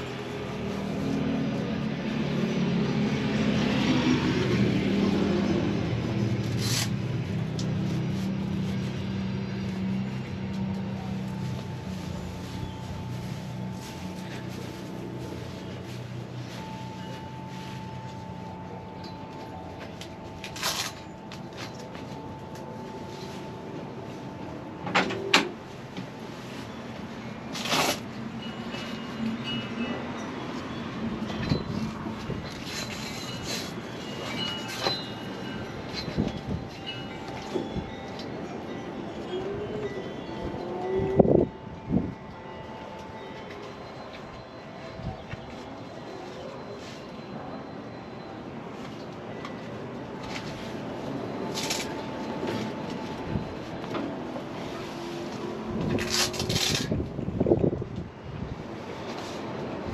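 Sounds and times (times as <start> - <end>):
vehicle engine running: 0.0 - 24.9.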